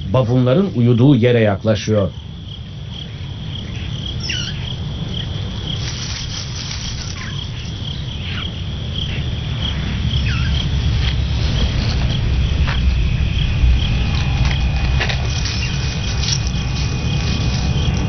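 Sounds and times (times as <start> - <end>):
crickets trilling: 0.0 - 18.0
low rumble: 2.2 - 18.0
short falling animal calls: 6.0 - 8.5.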